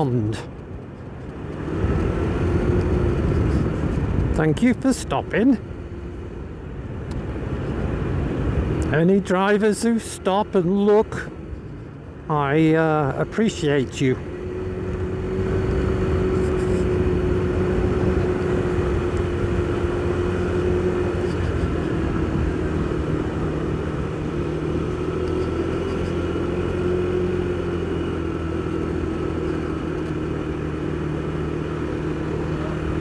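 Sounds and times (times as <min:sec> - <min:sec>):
motorcycle engine running: 0:00.0 - 0:33.0
road noise: 0:00.0 - 0:33.0
wind noise: 0:00.8 - 0:04.9.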